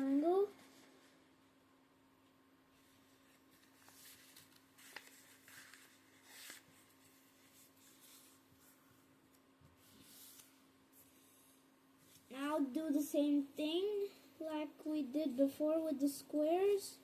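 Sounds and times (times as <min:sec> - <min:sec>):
paper rustling while folded: 0:02.8 - 0:08.9.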